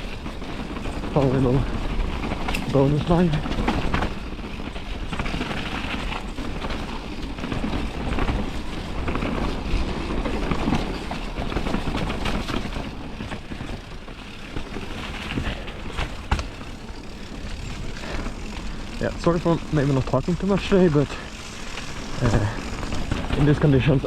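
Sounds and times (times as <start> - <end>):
bike rattles and knocks: 0.0 - 24.0
tyre and wind noise: 0.0 - 24.0.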